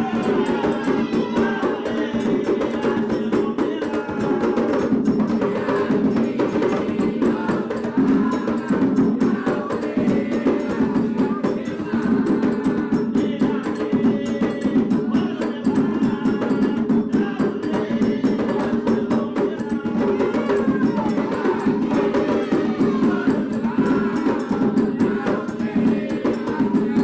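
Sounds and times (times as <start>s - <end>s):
hand drums beating: 0.0s - 27.0s
sharp clacking percussion: 0.0s - 27.0s.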